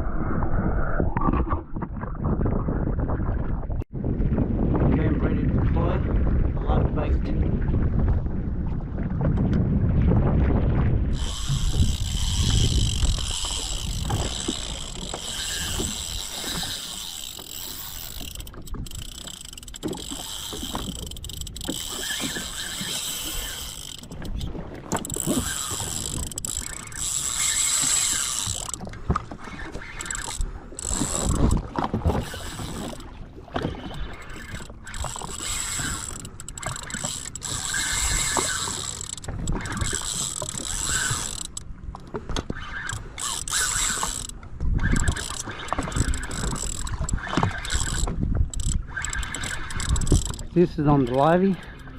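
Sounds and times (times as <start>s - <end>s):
fishing reel clicker ticking: 11.1s - 28.9s, 29.8s - 33.1s, 34.1s - 42.1s, 42.7s - 51.9s.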